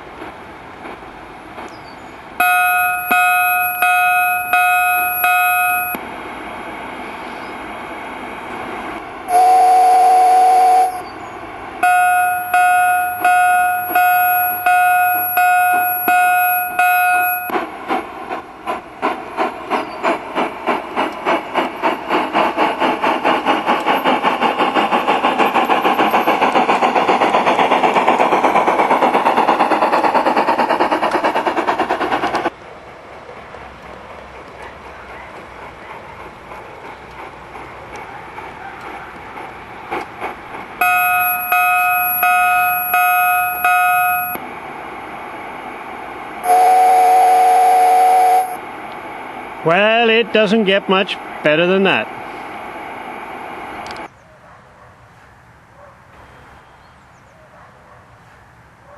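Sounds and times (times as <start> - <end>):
steam exhaust chuffs: 2.3 - 54.1
locomotive bell ringing: 2.4 - 6.0, 11.8 - 17.6, 40.8 - 44.4
steam whistle blast: 9.3 - 11.0, 46.4 - 48.6.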